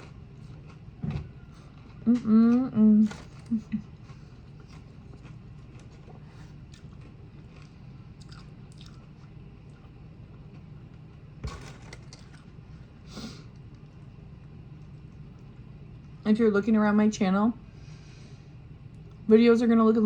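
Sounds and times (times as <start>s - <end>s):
person chewing food: 0.0s - 2.2s, 3.3s - 15.7s.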